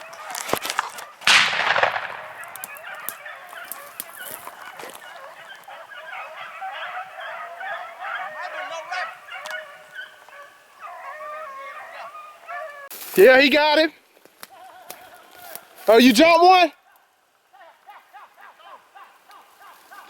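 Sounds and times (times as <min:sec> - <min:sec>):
dogs baying: 0:00.0 - 0:12.9, 0:16.8 - 0:20.0
loud bang: 0:01.3 - 0:02.9.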